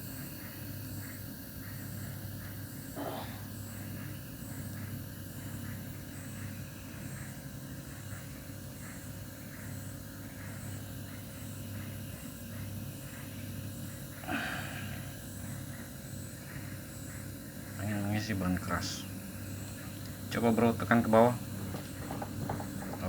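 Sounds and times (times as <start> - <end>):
compressor humming: 0.0 - 23.0.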